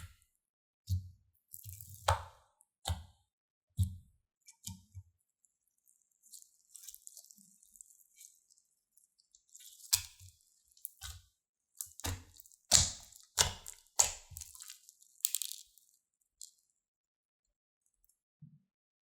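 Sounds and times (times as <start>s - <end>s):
crunchy slime crackling: 11.8s - 16.5s.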